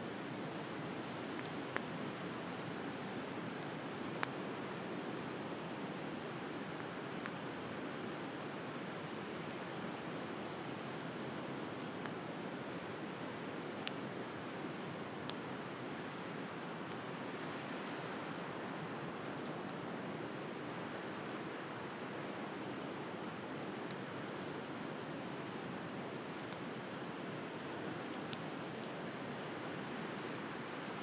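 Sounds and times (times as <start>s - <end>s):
wood fire crackling: 27.4s - 31.0s.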